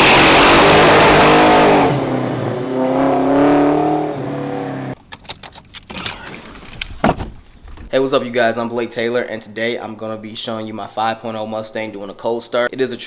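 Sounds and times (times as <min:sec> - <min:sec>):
supercharged engine revving: 0:00.0 - 0:05.0.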